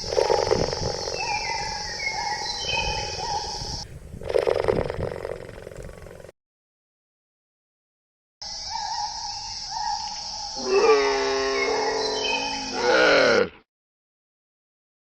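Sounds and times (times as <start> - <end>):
high insect-like buzz: 8.4 - 13.5
large animal roaring: 10.6 - 13.6.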